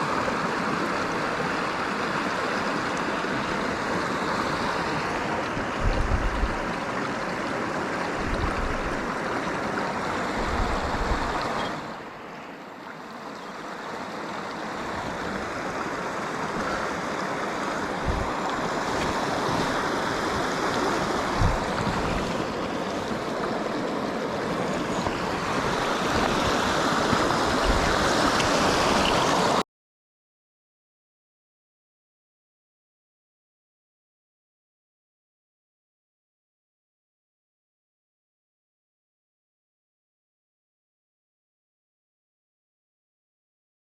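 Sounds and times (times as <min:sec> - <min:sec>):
mountain stream rushing: 0:00.0 - 0:29.6
low thumps on microphone: 0:21.4 - 0:22.0.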